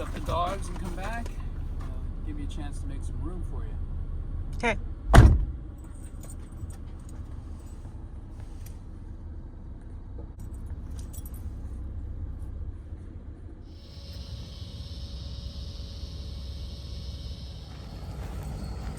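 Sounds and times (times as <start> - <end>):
vehicle engine rumbling: 0.0 - 18.9
light clicks and jingles: 5.8 - 8.8, 10.4 - 11.8, 17.7 - 18.9.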